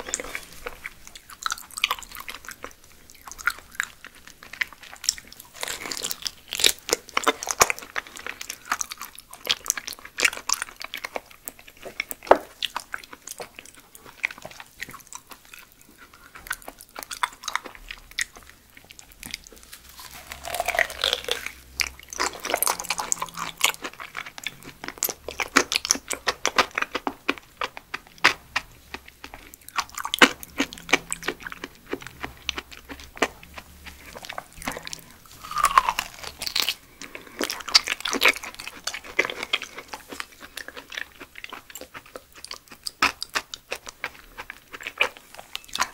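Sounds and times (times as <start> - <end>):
wet chewing and mouth smacks: 0.0 - 45.9
crunchy bites: 19.2 - 45.9.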